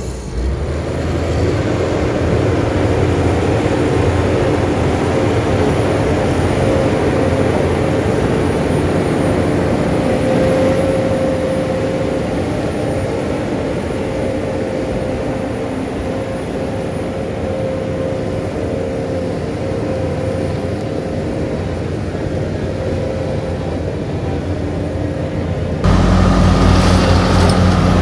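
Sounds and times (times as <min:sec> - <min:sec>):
diesel engine rumbling: 0:25.8 - 0:28.0.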